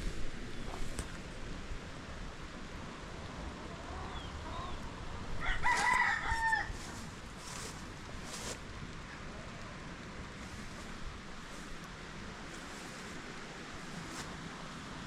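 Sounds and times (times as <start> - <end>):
rooster crowing: 5.4 - 7.1.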